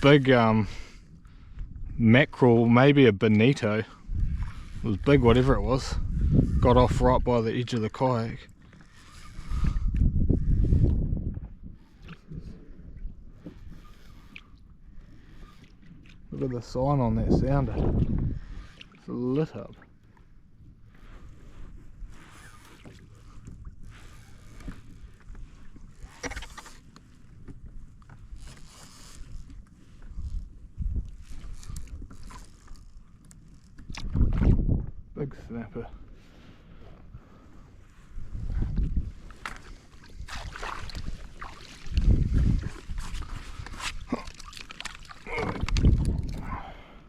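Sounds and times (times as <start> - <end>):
wind rumbling on microphone: 0.0 - 2.4, 4.0 - 14.4, 16.3 - 18.8, 27.5 - 36.0, 36.7 - 47.0
water splashing against kayak: 3.3 - 35.0, 36.0 - 47.0.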